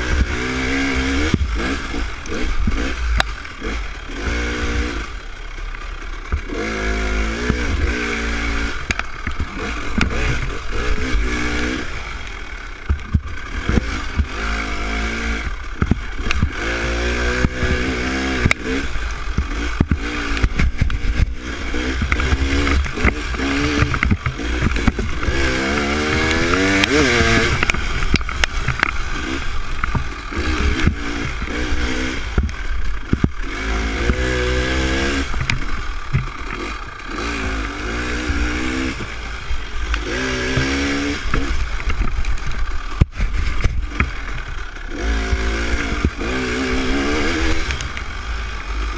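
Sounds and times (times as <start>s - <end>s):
dirt bike engine revving: 0.0s - 48.9s
knocks and rattles: 12.8s - 14.5s, 15.2s - 48.1s.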